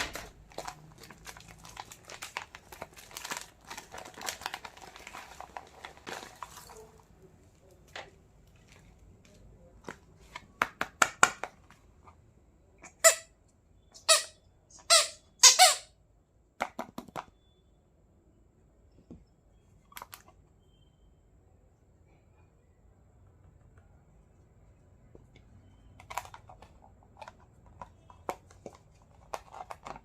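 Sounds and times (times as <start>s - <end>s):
plastic rubbing squeaks: 25.6s - 30.0s
plastic toy pieces clicking: 26.0s - 30.0s.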